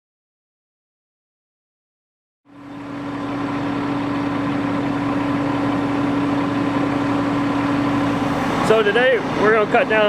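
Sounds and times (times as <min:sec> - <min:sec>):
engine running steadily: 0:02.5 - 0:10.0.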